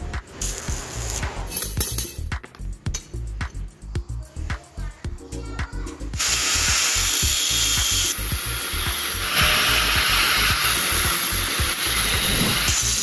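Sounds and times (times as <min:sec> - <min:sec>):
background music with beat: 0:00.0 - 0:13.0
power tool hissing: 0:06.2 - 0:13.0.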